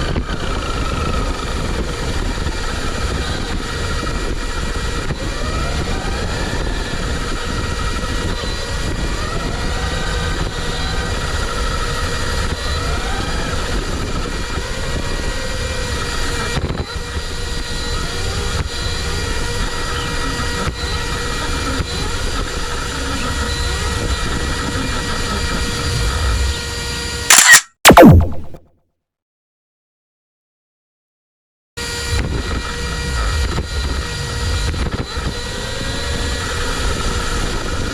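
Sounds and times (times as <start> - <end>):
rumble of tyres and wind: 0.0 - 26.5, 32.2 - 37.9
electronic tones: 27.0 - 28.6.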